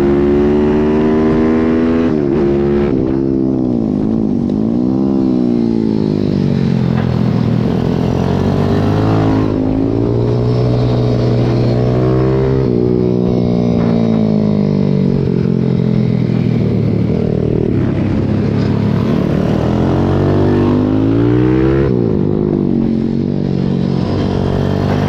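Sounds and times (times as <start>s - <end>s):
pit bike engine revving: 6.6s - 14.2s, 17.1s - 23.1s.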